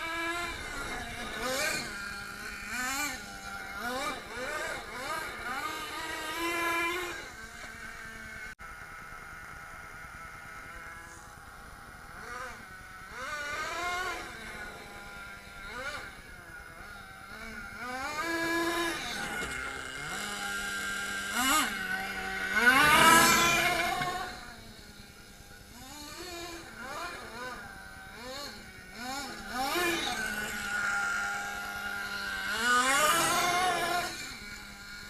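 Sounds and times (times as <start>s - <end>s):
model truck nitro engine revving: 0.0s - 35.0s.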